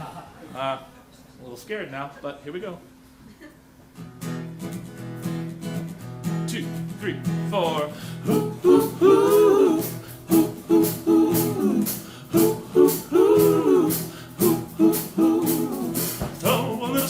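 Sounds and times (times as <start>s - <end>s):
strummed guitar: 4.0s - 17.0s.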